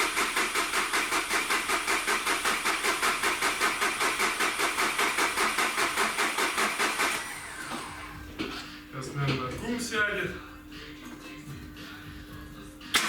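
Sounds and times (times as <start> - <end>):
starter cranking diesel engine: 0.0 - 8.2.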